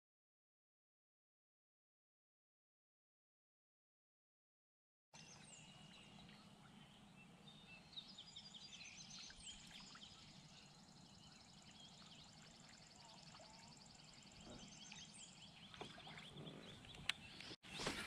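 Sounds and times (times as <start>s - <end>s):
wild birds chirping: 5.2s - 18.0s.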